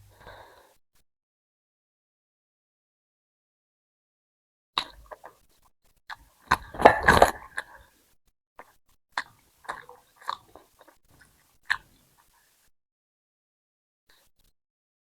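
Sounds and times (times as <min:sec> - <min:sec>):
chewing and mouth sounds: 0:08.6 - 0:11.9
mouth smacks and clicks: 0:08.6 - 0:11.9.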